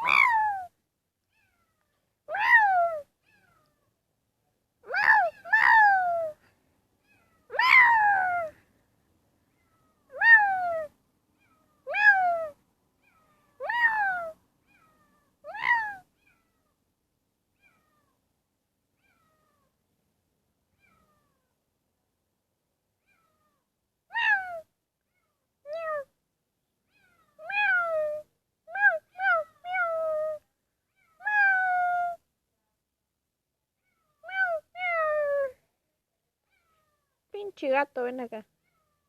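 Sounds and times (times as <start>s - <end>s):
cat meowing: 0.0s - 0.7s, 1.3s - 3.9s, 4.8s - 6.4s, 7.0s - 8.6s, 9.6s - 16.8s, 17.6s - 18.2s, 19.0s - 19.7s, 20.8s - 21.6s, 23.0s - 26.1s, 26.9s - 32.2s, 33.8s - 35.6s.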